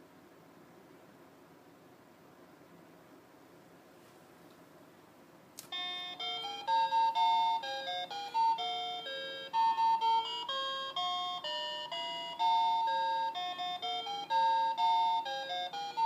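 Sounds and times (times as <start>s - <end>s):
electronic beeping melody: 5.8s - 16.0s.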